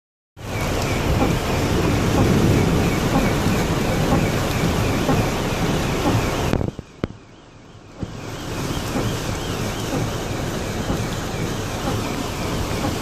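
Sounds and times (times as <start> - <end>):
wind buffeting microphone: 0.6 - 7.1.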